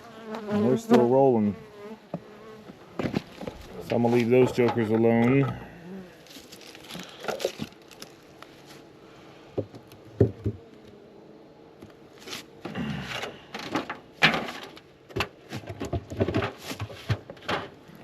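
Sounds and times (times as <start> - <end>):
wooden hive boxes knocking: 9.6 - 10.7.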